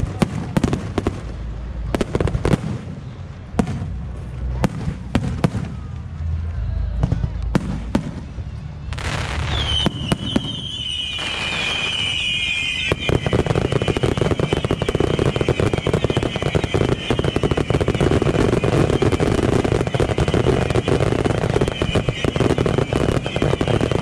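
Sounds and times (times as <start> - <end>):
fireworks bangs: 0.0 - 6.4, 7.0 - 24.0
whistling firework shells: 8.2 - 24.0
dense rapid crackling: 11.1 - 24.0.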